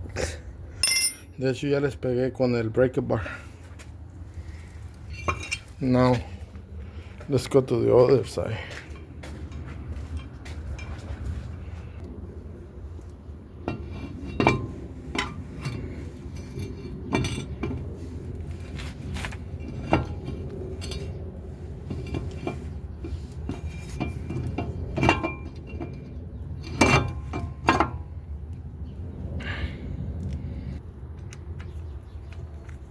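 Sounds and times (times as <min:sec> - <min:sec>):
metal tools clinking: 0:00.8 - 0:01.4, 0:05.1 - 0:06.1, 0:18.7 - 0:21.2
steady low hum: 0:02.3 - 0:31.7.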